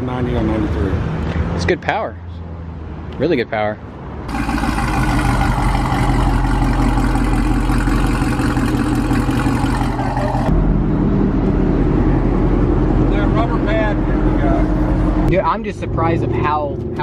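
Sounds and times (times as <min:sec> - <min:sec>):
car engine idling: 0:04.3 - 0:10.6.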